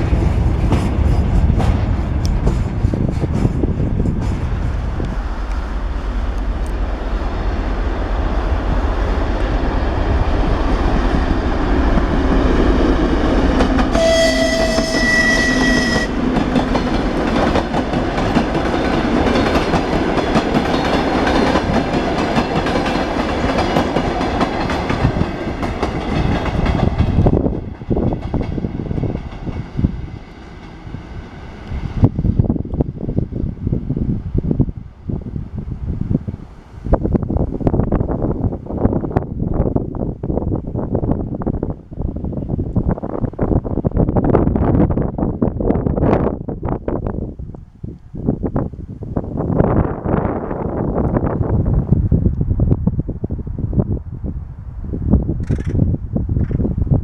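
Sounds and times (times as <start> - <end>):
train wheels clattering on track: 0.0 - 31.0, 55.4 - 55.8, 56.4 - 56.7
train horn blast: 13.9 - 16.3.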